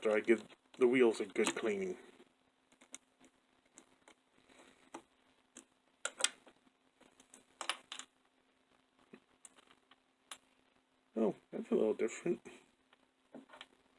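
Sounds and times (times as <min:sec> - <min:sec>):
small metal and plastic parts clicking: 0:02.7 - 0:04.2, 0:04.9 - 0:06.4.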